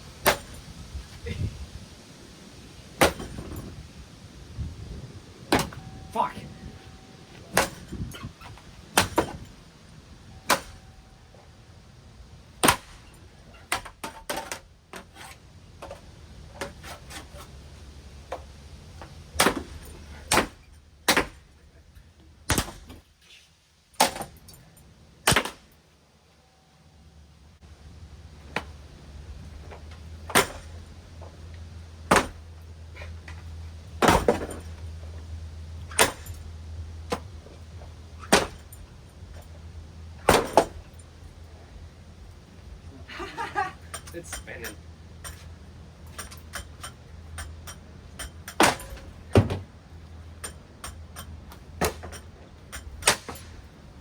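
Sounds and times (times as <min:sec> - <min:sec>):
fan motor hum: 0:00.0 - 0:22.8, 0:24.0 - 0:54.0
sharp whacks on ceiling fan: 0:25.3 - 0:25.6.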